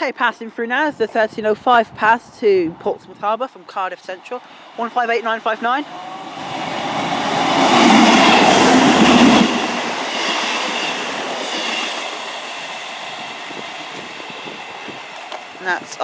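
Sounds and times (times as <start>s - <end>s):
diesel train passing: 4.4s - 16.0s.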